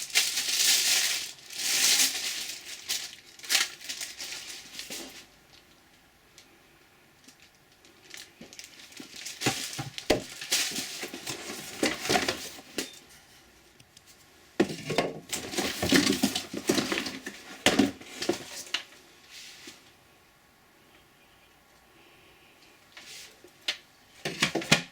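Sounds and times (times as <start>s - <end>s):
packaging rustling and crinkling: 0.0s - 6.5s, 7.2s - 13.0s, 14.6s - 19.8s
plastic clattering and knocking: 14.6s - 18.5s, 24.2s - 24.9s.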